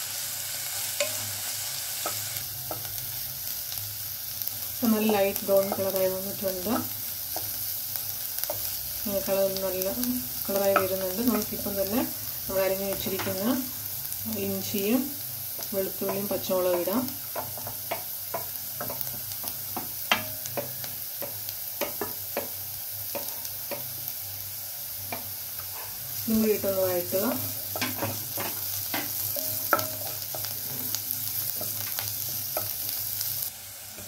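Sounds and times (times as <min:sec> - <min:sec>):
vegetables sizzling in hot oil: 0:00.0 - 0:34.0
spatula tapping and scraping pan: 0:04.8 - 0:07.6, 0:10.5 - 0:11.9, 0:15.5 - 0:24.0, 0:26.5 - 0:33.0.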